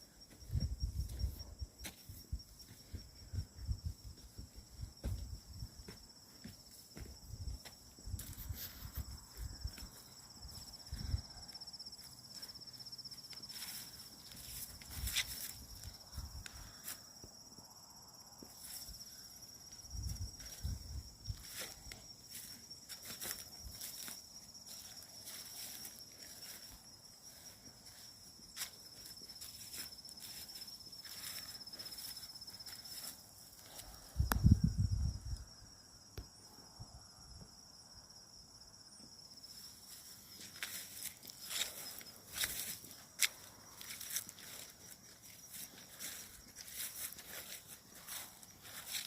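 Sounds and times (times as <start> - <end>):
insects trilling: 0.0 - 49.0
footsteps crunching through leaves: 13.4 - 16.0, 21.3 - 33.8, 40.0 - 49.0.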